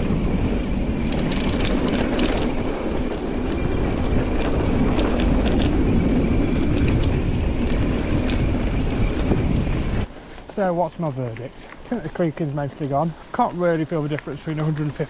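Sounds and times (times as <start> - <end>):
wind on microphone: 0.0 - 10.2
bike clicks and rattles: 0.0 - 10.5, 11.2 - 15.0
tyres rumbling on dirt: 0.0 - 15.0.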